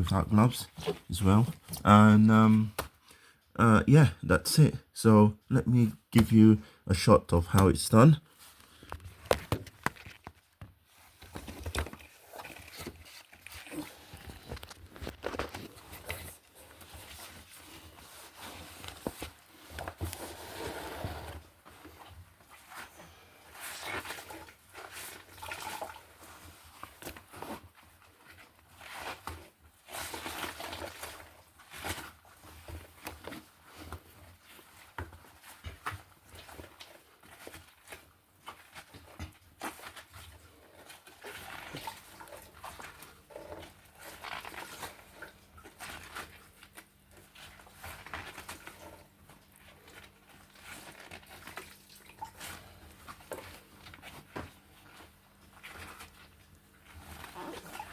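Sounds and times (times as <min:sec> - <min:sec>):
water trickling into a bucket: 0:23.6 - 0:27.2, 0:35.7 - 0:54.0.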